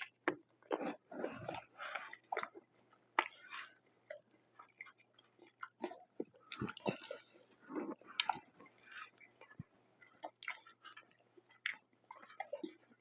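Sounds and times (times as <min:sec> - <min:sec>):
close chewing with crunchy bites: 0:00.0 - 0:13.0
lip and teeth clicks: 0:00.0 - 0:13.0.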